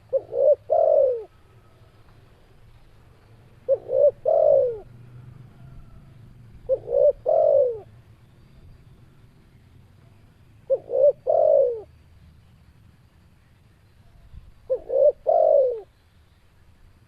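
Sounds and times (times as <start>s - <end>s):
dove cooing: 0.0s - 1.9s, 3.6s - 8.0s, 10.0s - 11.9s, 14.0s - 16.0s.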